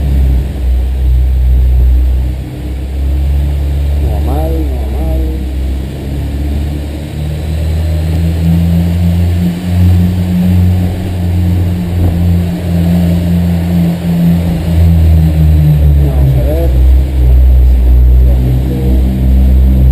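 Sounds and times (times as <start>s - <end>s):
car engine running under load: 0.0s - 19.9s.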